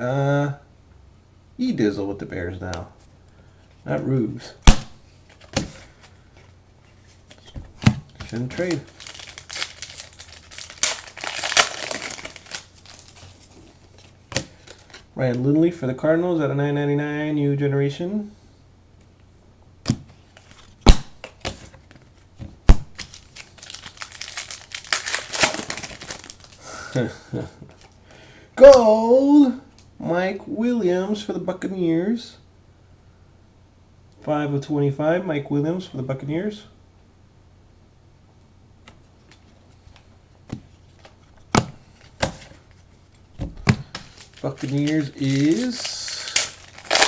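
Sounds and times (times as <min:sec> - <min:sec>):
card pack wrappers crinkling: 0:05.3 - 0:15.1, 0:22.9 - 0:26.9, 0:40.9 - 0:47.0.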